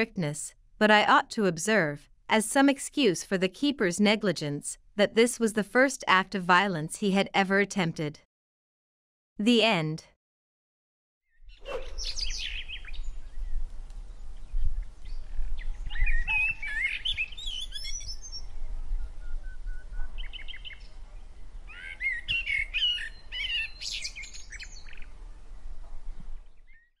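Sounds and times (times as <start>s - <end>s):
birds chirping and singing: 11.3s - 13.6s, 14.4s - 21.0s, 21.7s - 25.1s.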